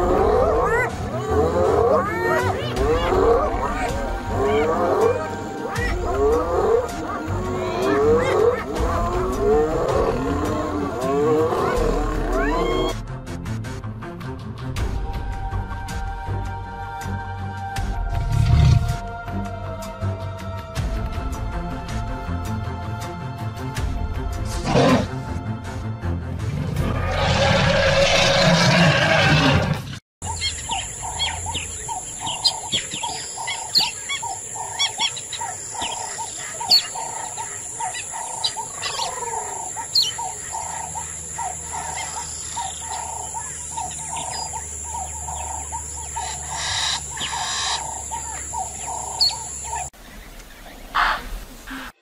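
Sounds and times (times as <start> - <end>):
lion snarling: 0.0 - 12.7, 24.6 - 25.2
birds chirping: 0.0 - 13.0, 30.2 - 52.0.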